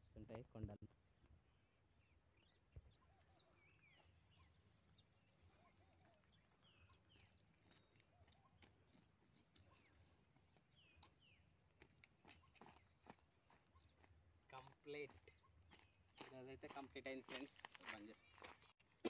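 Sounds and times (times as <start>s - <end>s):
birds calling with falling whistles: 1.5s - 14.1s.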